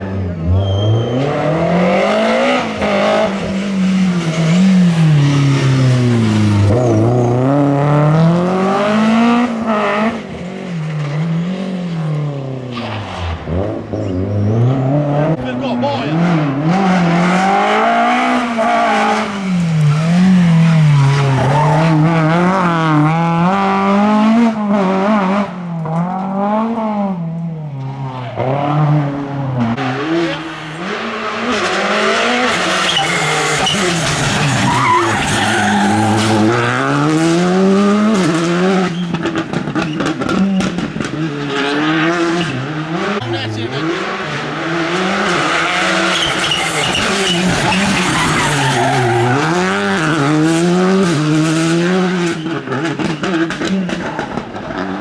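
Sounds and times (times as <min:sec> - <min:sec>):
rally car engines revving: 0:00.0 - 0:55.0
tyres squealing: 0:19.6 - 0:23.4, 0:27.9 - 0:36.9, 0:42.3 - 0:50.7.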